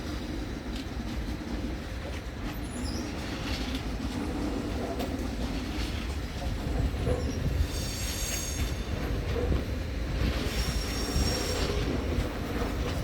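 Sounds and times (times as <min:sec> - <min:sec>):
train rumbling over tracks: 0:00.0 - 0:13.0
train wheels squealing: 0:02.4 - 0:04.6, 0:06.6 - 0:13.0.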